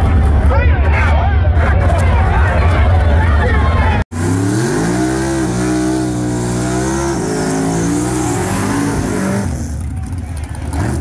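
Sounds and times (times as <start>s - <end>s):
car engine revving high: 4.1s - 9.8s.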